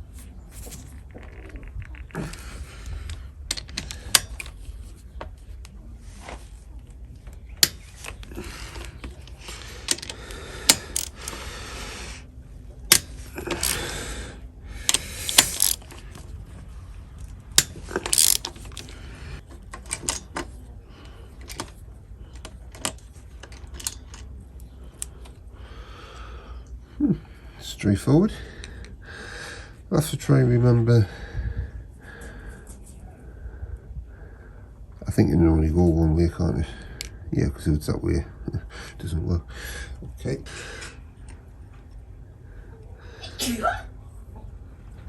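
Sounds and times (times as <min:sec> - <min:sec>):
metal clicks of spanners: 0:01.9 - 0:05.0, 0:07.6 - 0:11.5, 0:12.9 - 0:13.9, 0:14.8 - 0:16.3, 0:17.2 - 0:25.4
short rattling bursts: 0:07.7 - 0:11.9, 0:12.9 - 0:16.0, 0:17.5 - 0:19.0.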